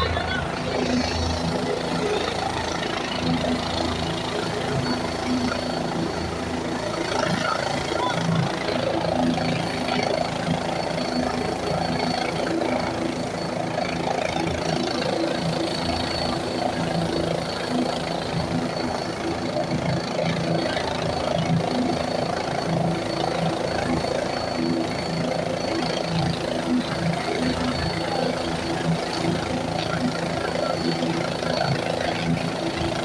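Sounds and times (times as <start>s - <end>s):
helicopter engine and rotor: 0.0s - 33.0s.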